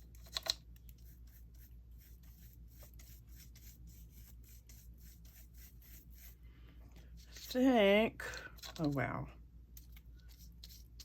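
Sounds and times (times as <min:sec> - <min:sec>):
brush rubbing on paper: 0:01.0 - 0:06.4.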